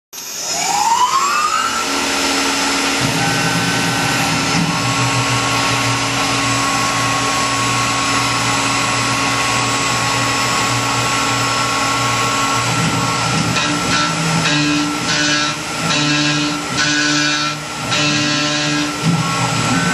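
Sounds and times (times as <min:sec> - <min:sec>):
mill spindle whine: 0:00.2 - 0:19.9
steady tone: 0:00.2 - 0:19.9
low hum: 0:01.7 - 0:16.8.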